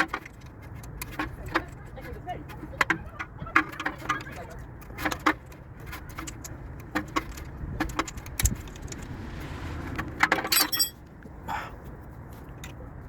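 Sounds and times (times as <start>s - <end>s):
metal tools clicking and clinking: 3.6s - 9.1s, 10.3s - 11.0s
ringing metal clinks: 10.5s - 11.0s.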